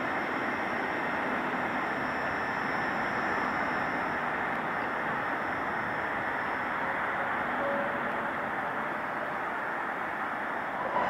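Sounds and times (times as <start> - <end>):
faint high whine: 0.0 - 11.0
train wheel and rail noise: 0.0 - 11.0.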